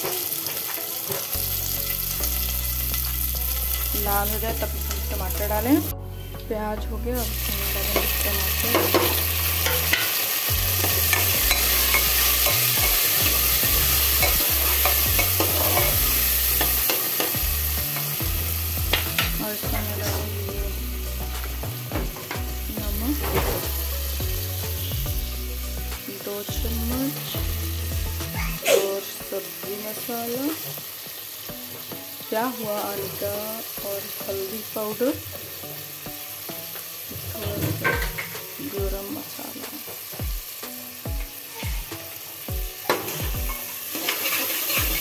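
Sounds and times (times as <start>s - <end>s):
onion sizzling in hot oil: 0.0s - 45.0s
metal ladle scraping a pan: 7.3s - 18.2s, 37.1s - 38.5s, 42.9s - 45.0s.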